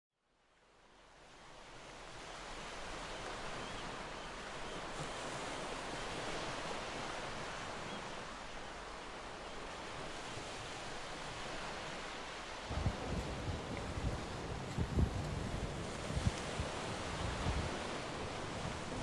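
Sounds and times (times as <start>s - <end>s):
wind: 0.2s - 19.0s
sea water: 1.0s - 19.0s.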